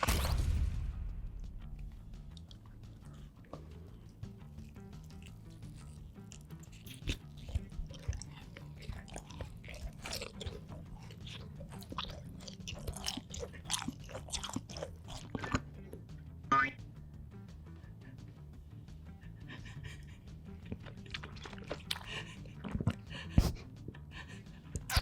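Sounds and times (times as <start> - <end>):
soft background music: 0.1 - 25.0
crunching and chewing crisp food: 1.7 - 16.2, 19.5 - 25.0.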